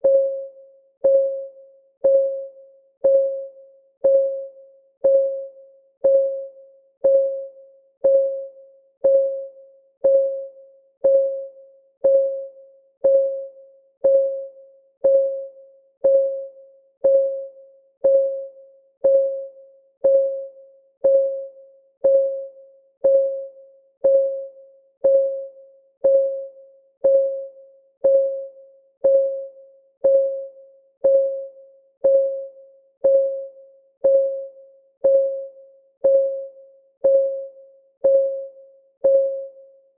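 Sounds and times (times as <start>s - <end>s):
timer clock ticking: 3.0s - 39.5s.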